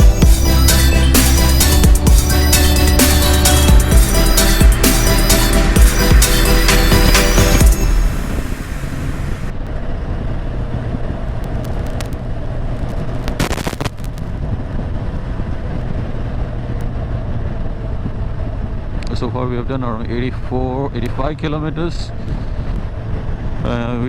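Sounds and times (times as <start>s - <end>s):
road and wind noise: 7.6s - 24.0s.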